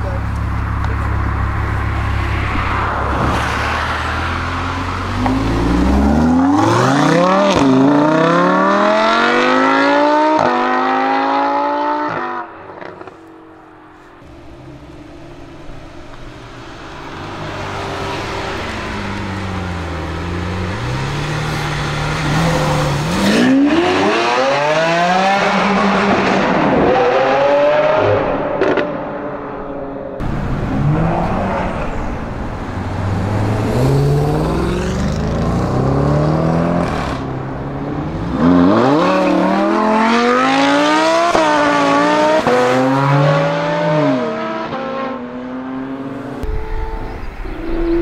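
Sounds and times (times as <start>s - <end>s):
sports car engine at low revs: 0.0s - 3.3s
sports car engine accelerating: 0.0s - 48.0s.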